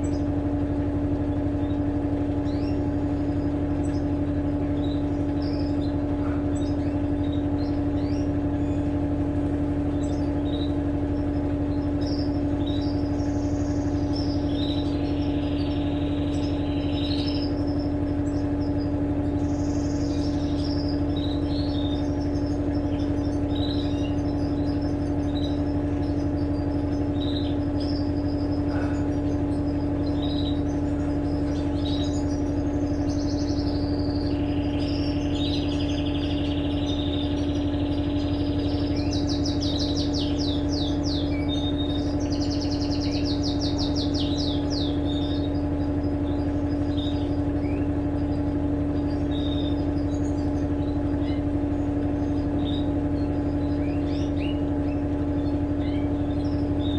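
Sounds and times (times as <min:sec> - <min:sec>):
birds chirping and trilling: 0:00.0 - 0:56.9
washing machine humming: 0:00.0 - 0:56.9.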